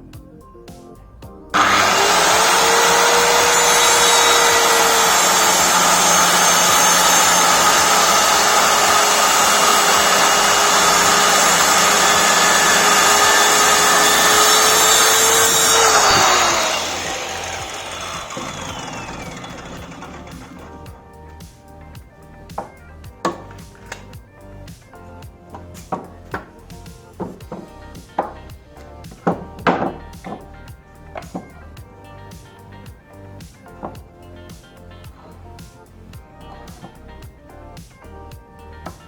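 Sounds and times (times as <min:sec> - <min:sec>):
circular saw cutting wood: 0:01.6 - 0:21.1.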